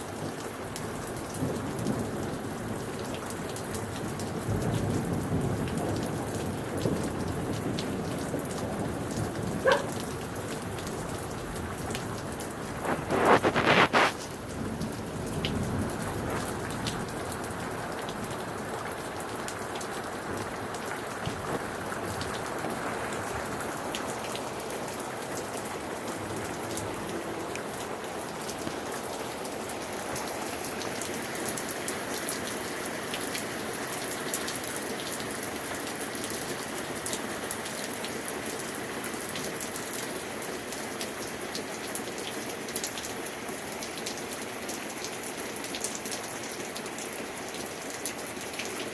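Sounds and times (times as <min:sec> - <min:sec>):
steady rain falling: 0:00.0 - 0:48.9
low rumble of thunder: 0:03.8 - 0:11.8.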